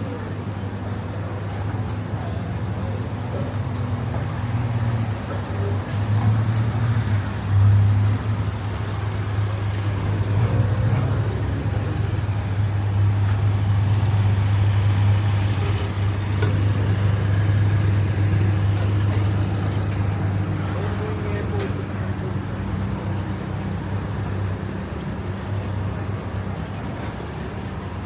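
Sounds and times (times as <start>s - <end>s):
street traffic: 0.0s - 28.0s
motor vehicle engine drone: 0.1s - 28.0s.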